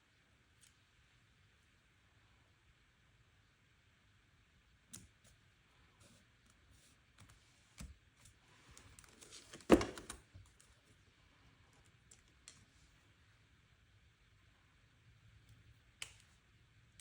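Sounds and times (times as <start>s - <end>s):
paper rustling: 8.5s - 10.2s.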